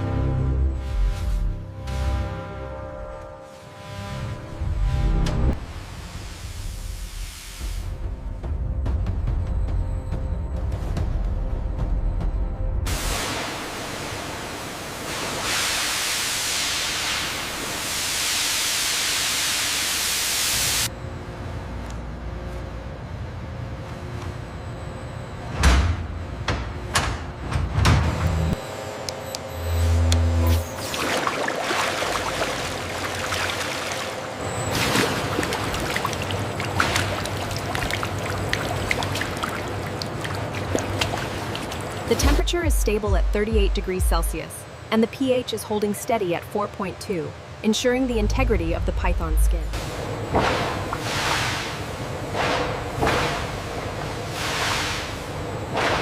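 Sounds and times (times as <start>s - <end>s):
loud steady hiss: 12.9s - 20.9s
water running and trickling: 30.8s - 42.1s
small drips and splashes: 30.9s - 42.1s.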